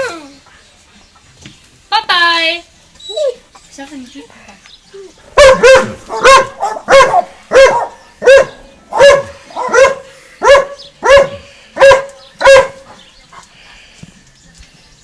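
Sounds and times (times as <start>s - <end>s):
dog barking: 5.3s - 13.0s.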